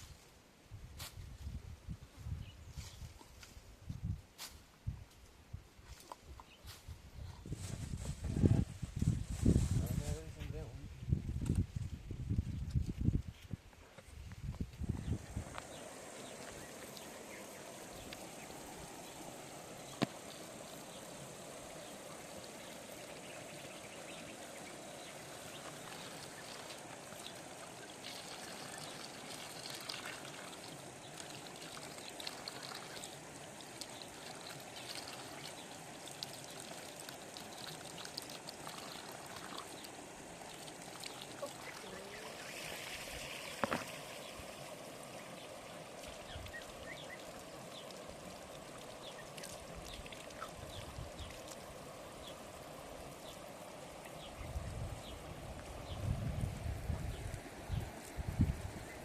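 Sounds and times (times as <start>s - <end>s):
water running: 15.0s - 59.0s.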